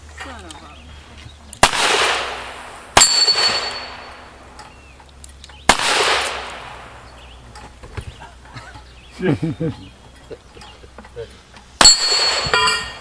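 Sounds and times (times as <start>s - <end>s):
steel target clanging: 1.5s - 7.8s, 9.6s - 13.0s
echoing gunshots: 1.6s - 4.6s, 5.7s - 7.2s.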